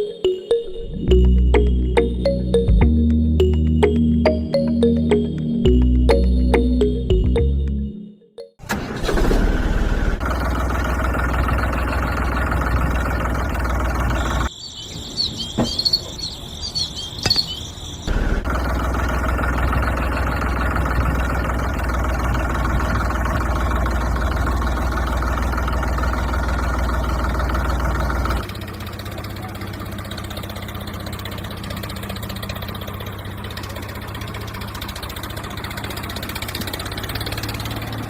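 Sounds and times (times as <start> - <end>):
high chirping squeaks: 14.2 - 18.1.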